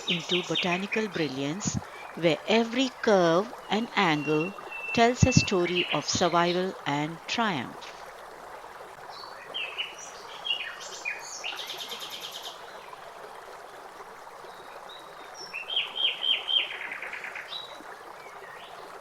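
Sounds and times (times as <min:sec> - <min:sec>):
songbirds chirping and trilling: 0:00.0 - 0:01.8, 0:02.8 - 0:06.9, 0:09.2 - 0:12.7.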